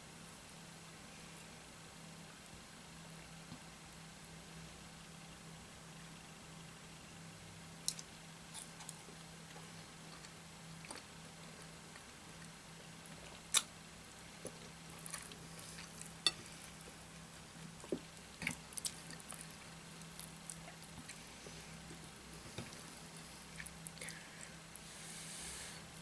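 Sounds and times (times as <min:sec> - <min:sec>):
faint steady hum: 0:00.0 - 0:26.0
wet eating squishes: 0:07.8 - 0:24.5.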